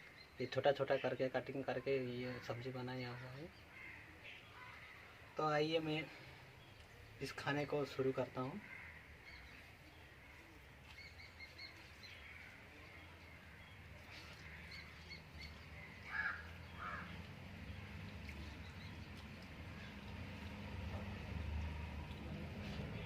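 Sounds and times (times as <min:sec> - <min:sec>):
faint birds chirping: 0:00.0 - 0:23.0
harsh bird calls: 0:02.2 - 0:20.1.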